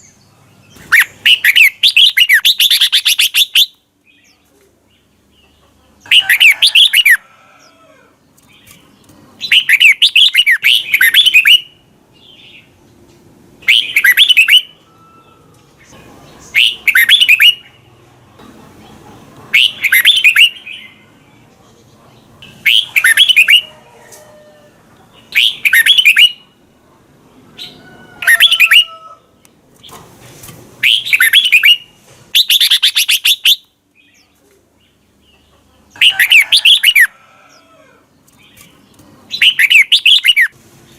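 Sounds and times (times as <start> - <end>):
bulbul singing: 8.4 - 12.8, 13.6 - 18.5, 19.5 - 24.2, 25.0 - 26.6, 30.8 - 37.1, 38.2 - 40.6.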